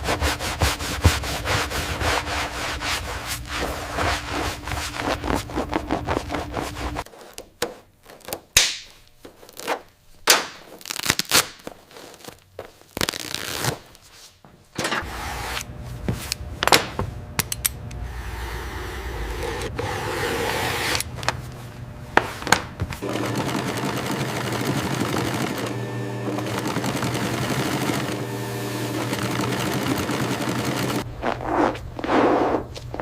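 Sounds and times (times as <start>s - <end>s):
sanding: 0.0s - 7.1s, 23.0s - 31.0s
machine hum: 0.1s - 7.0s, 14.8s - 32.0s.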